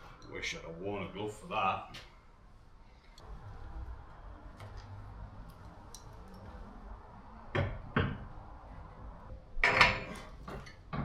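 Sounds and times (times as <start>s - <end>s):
faint clicks and handling noise: 2.9s - 3.3s, 4.0s - 6.8s.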